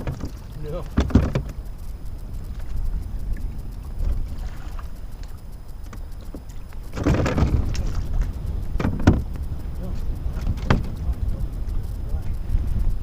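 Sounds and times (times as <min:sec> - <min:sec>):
water lapping against hull: 0:00.0 - 0:13.0
wind rumbling on microphone: 0:00.0 - 0:13.0
water rush: 0:02.4 - 0:11.3.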